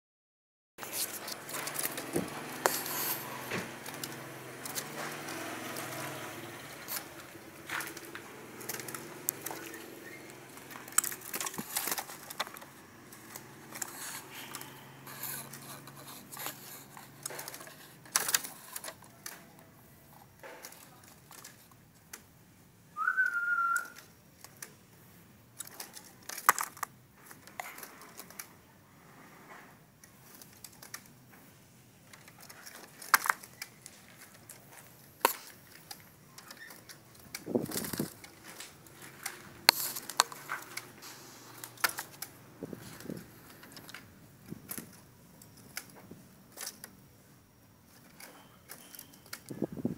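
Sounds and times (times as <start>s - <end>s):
clicks and scratches: 0.8s - 22.3s, 23.8s - 47.0s
bird whistled note: 23.0s - 24.0s.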